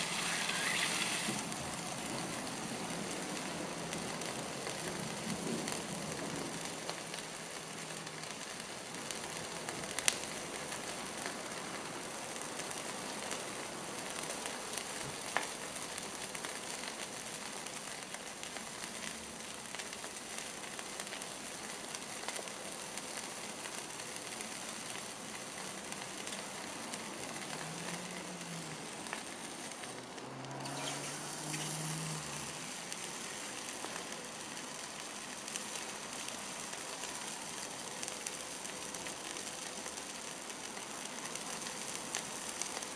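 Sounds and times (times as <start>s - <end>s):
hot metal sizzling in food: 0.0s - 42.9s
sharp pops: 30.5s - 33.3s.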